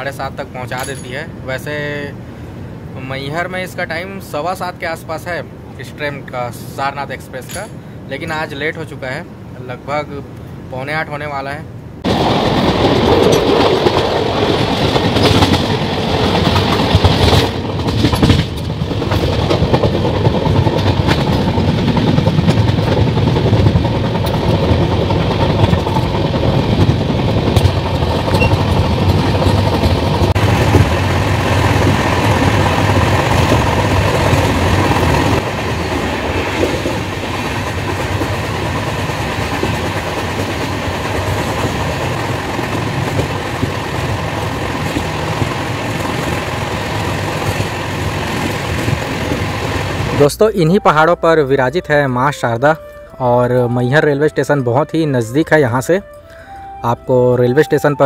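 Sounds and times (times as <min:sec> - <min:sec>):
train rushing on rails: 0:00.0 - 0:58.0
wheels clattering over rail joints: 0:12.0 - 0:50.3.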